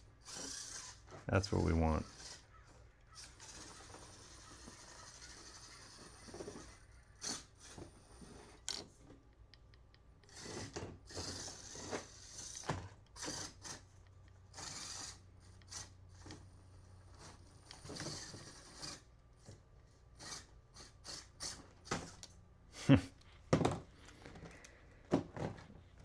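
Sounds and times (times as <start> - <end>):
tyres scraping on obstacles: 0.2 - 8.6, 10.3 - 13.8, 17.1 - 19.1.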